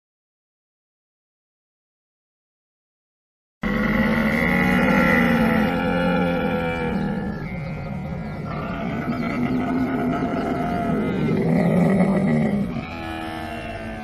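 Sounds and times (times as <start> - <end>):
camel calling: 3.6 - 14.0.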